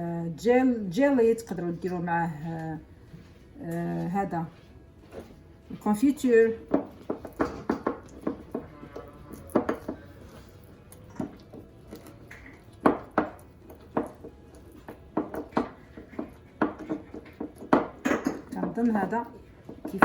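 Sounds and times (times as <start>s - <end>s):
cutlery and crockery knocking: 6.7s - 8.7s, 12.3s - 18.8s.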